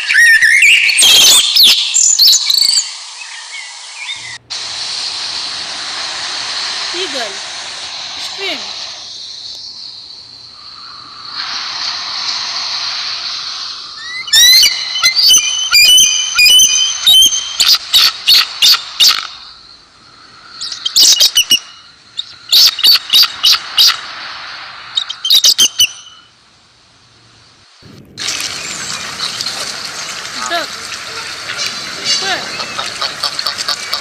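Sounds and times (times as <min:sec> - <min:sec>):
background hiss: 0:00.1 - 0:34.0
eagle calling: 0:05.1 - 0:19.6, 0:28.2 - 0:34.0.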